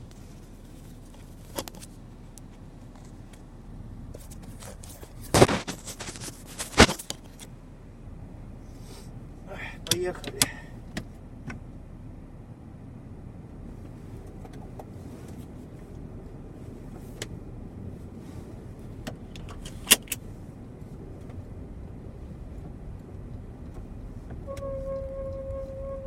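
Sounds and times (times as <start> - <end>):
car cabin running noise: 0.0 - 26.0
high-pitched squeak under car: 24.4 - 26.0.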